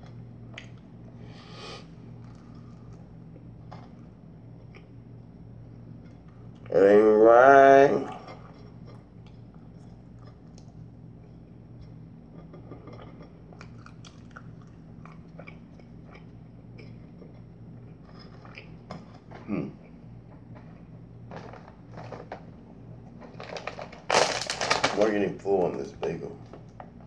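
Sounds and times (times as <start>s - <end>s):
faint steady hum: 0.0s - 27.0s
person chewing wet mouth noises: 13.6s - 17.5s.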